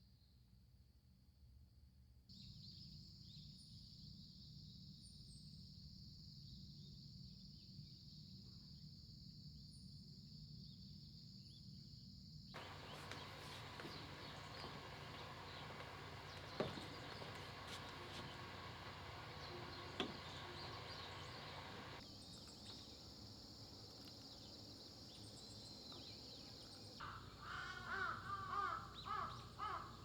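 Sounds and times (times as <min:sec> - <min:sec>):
high bird chirps: 0:12.6 - 0:22.0
insects chorus: 0:12.6 - 0:30.0.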